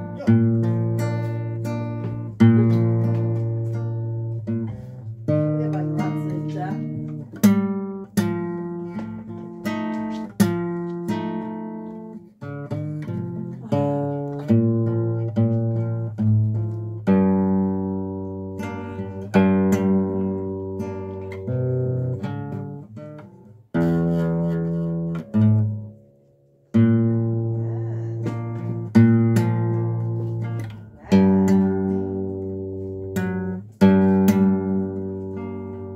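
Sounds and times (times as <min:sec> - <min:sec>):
acoustic guitar plucking: 0:00.0 - 0:35.9.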